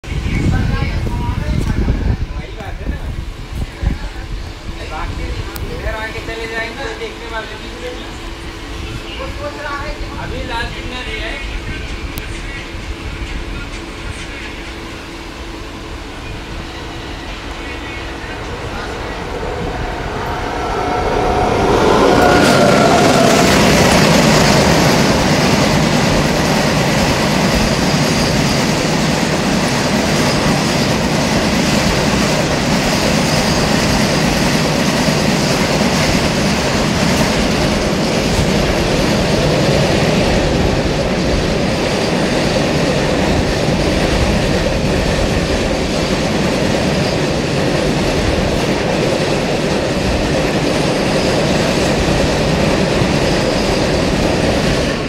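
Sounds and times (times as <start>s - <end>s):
freight wagons rumbling past: 16.8s - 45.6s.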